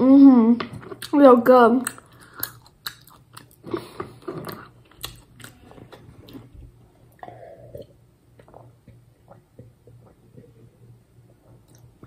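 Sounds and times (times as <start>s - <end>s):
chewing gummy sweet: 0.7s - 6.6s.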